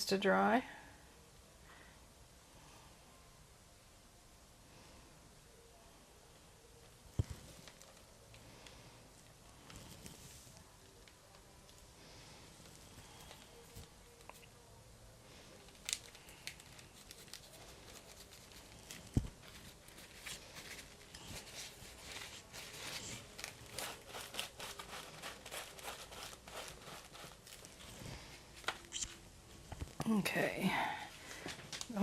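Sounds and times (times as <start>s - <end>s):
art tools scratching on paper: 16.9s - 27.9s.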